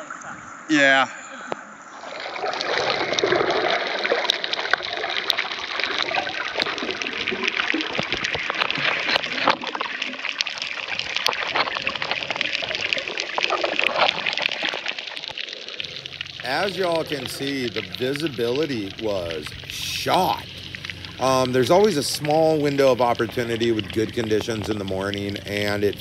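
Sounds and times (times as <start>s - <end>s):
water sloshing and splashing: 1.5s - 26.0s.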